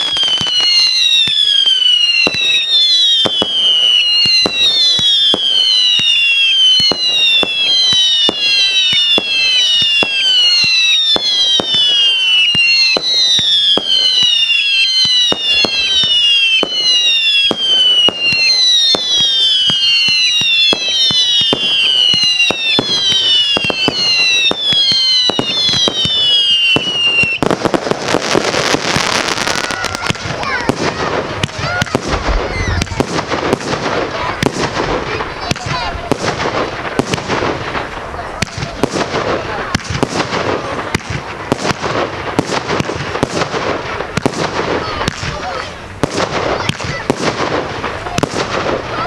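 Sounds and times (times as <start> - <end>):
firework cracks and pops: 0.0 - 49.0
whistling firework shots: 0.0 - 49.0.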